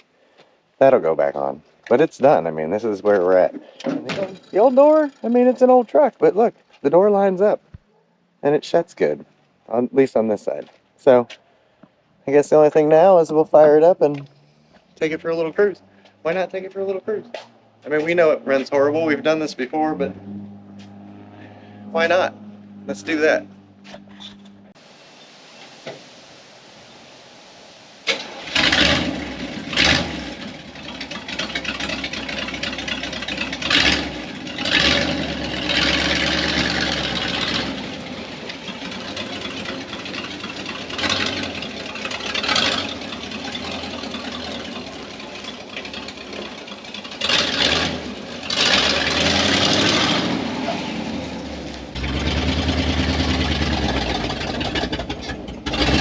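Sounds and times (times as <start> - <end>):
man talking: 0.8 - 7.6, 8.4 - 11.3, 12.2 - 14.3, 15.0 - 20.2, 21.9 - 23.5
truck engine revving and idling: 13.6 - 24.8, 28.2 - 56.0
pickup truck engine starting: 27.8 - 56.0.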